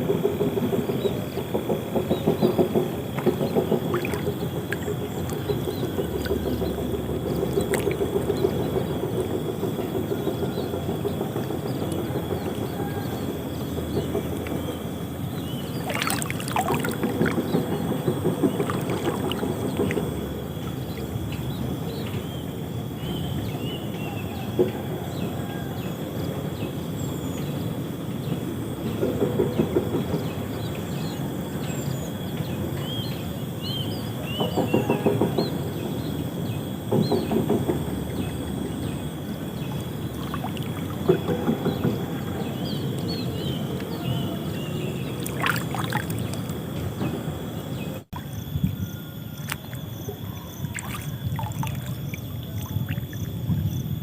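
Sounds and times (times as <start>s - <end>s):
water sloshing and splashing: 1.4s - 23.7s, 36.4s - 54.0s.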